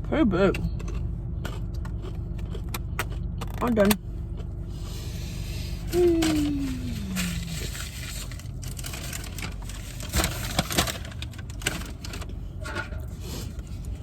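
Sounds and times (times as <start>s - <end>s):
steady low hum: 0.0s - 14.0s
food packaging rustling: 5.0s - 12.4s.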